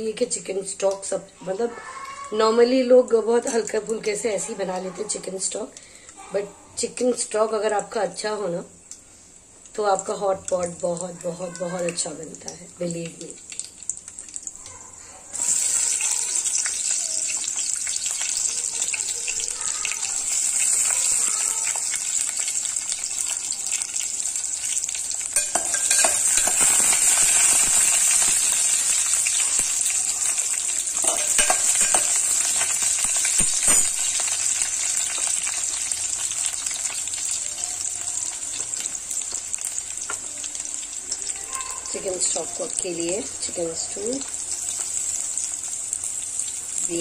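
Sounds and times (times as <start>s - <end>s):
vegetables frying in hot oil: 0.0s - 47.0s
spoon knocking against pot: 25.4s - 27.2s, 31.0s - 34.2s.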